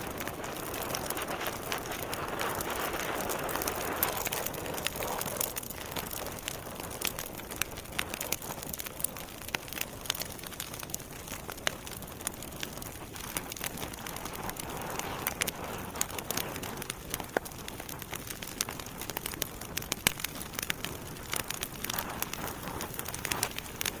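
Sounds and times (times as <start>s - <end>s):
campfire wood crackling and popping: 0.0s - 24.0s
flames hissing: 0.0s - 24.0s.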